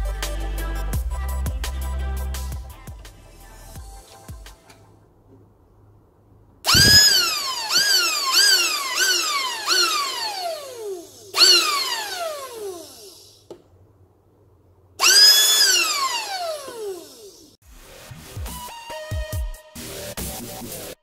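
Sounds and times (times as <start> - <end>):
electric motor whining: 6.7 - 13.5, 15.0 - 17.6.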